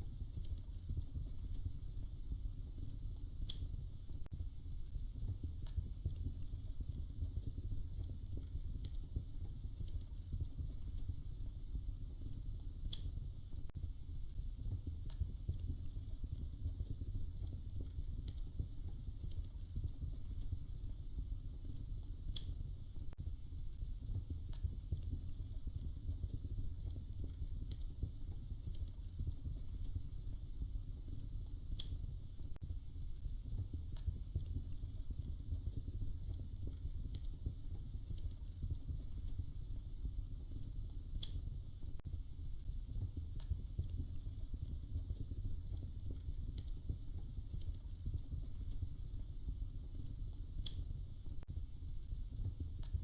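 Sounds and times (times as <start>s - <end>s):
low steady rumble: 0.0s - 53.0s
wood fire crackling: 0.0s - 53.0s.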